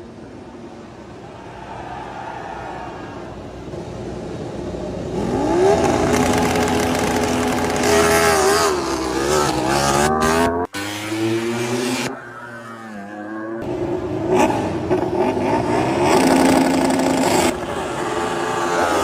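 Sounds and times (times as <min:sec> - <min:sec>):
racing motorcycle engine: 0:04.9 - 0:19.0.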